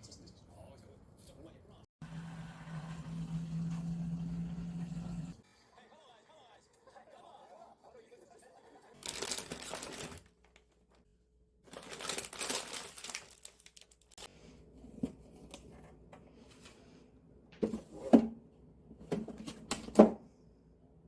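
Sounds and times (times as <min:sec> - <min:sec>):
plastic packaging crinkling: 0:09.0 - 0:11.0, 0:11.7 - 0:14.3.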